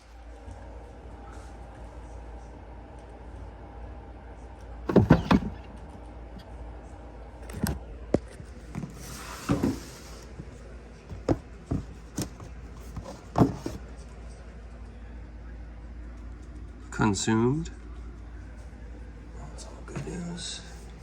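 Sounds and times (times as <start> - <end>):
knocks and clunks of handling: 4.9 - 5.9, 7.4 - 13.9.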